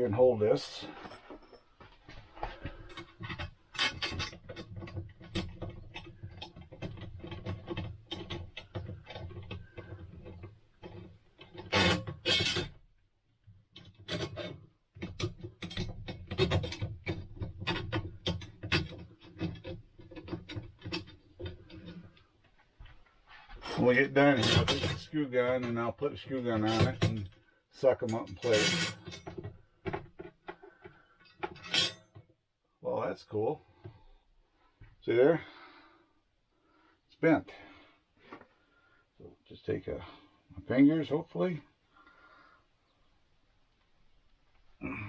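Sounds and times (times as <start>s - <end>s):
metal and plastic parts scraping: 0.8s - 12.8s, 13.8s - 22.2s, 23.3s - 25.9s, 26.5s - 32.2s.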